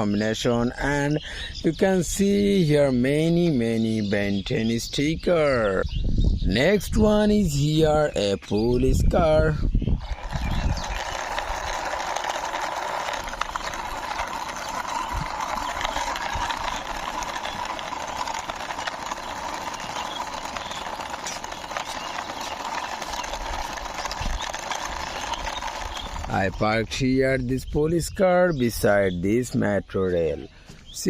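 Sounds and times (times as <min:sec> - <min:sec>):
toy car wheels whirring: 0:08.6 - 0:28.1.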